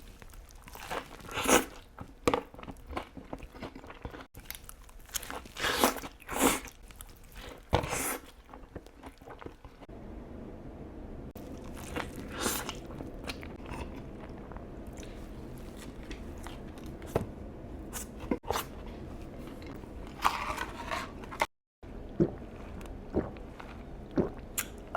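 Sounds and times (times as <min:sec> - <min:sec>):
person chewing food: 0:00.0 - 0:09.9, 0:11.4 - 0:17.2, 0:22.1 - 0:24.9.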